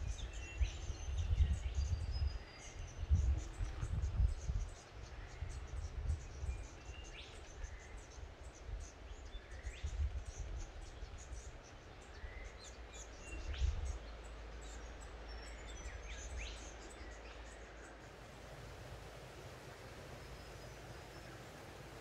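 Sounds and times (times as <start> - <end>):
low rumbling background noise: 0.0 - 22.0
small birds chirping: 11.7 - 22.0.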